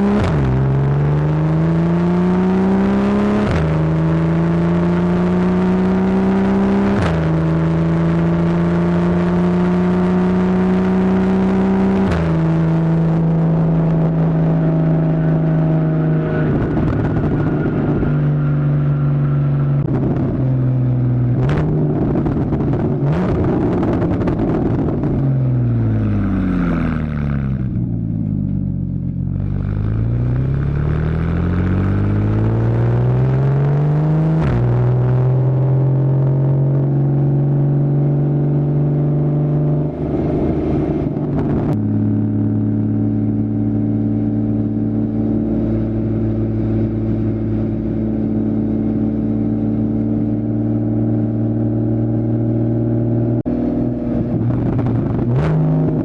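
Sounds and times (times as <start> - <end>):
sports car engine accelerating: 0.0 - 56.0
exhaust crackling: 10.0 - 38.2, 53.0 - 56.0.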